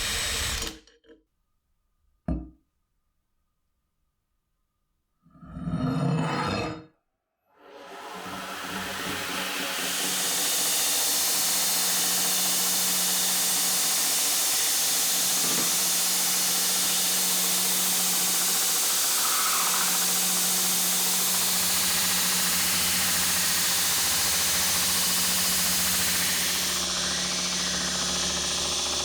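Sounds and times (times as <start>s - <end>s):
workshop tool running: 0.0s - 0.8s, 7.9s - 29.0s.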